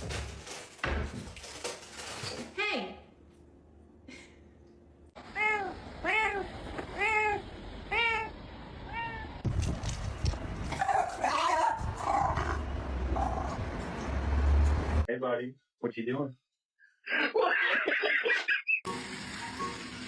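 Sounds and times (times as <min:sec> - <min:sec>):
cat wavering drawn-out cry: 0:05.2 - 0:09.4
cat meowing: 0:05.4 - 0:09.4.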